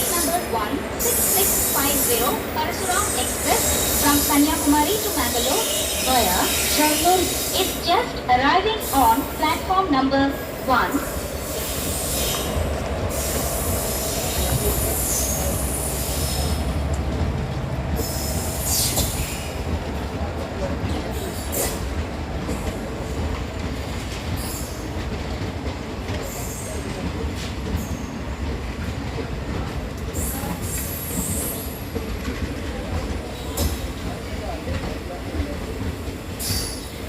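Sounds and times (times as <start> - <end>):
train coaches rumbling past: 0.0 - 37.0
train wheels squealing: 1.0 - 7.8, 11.0 - 16.6, 18.0 - 19.6, 36.4 - 37.0.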